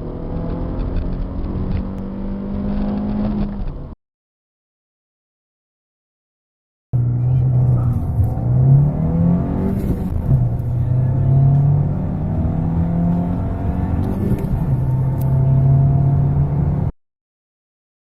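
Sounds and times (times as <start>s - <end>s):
car engine accelerating hard: 0.0s - 3.9s, 7.0s - 16.9s.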